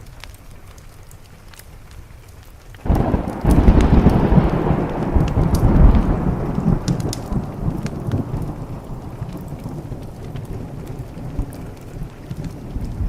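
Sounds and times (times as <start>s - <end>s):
steady rain: 0.0s - 13.0s
wood fire crackling: 0.0s - 13.0s
thunderclap rumbling: 2.8s - 13.0s.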